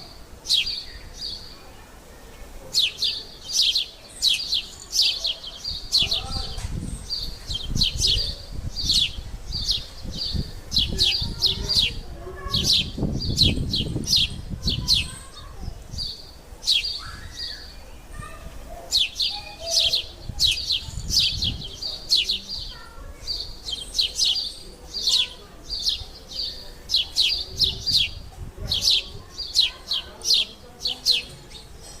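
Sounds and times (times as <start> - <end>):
small bird chirping: 2.7 - 18.3, 18.9 - 32.0.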